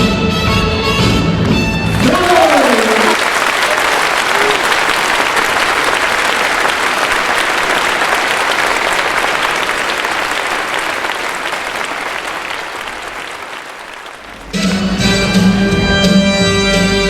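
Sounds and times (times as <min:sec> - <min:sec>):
audience applauding: 0:01.8 - 0:15.1.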